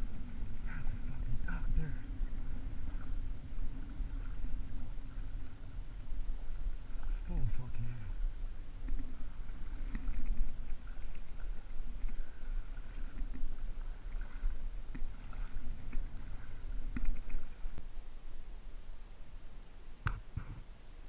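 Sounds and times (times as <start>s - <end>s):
water sloshing and lapping: 0.0s - 18.4s
steady low rumble: 0.0s - 21.0s
faint clicks: 8.8s - 17.9s.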